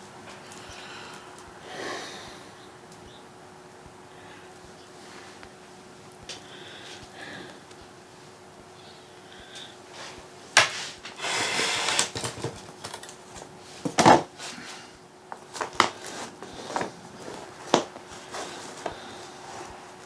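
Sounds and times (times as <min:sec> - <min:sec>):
objects clicking and knocking: 0:11.8 - 0:14.2
rustling: 0:15.3 - 0:20.0.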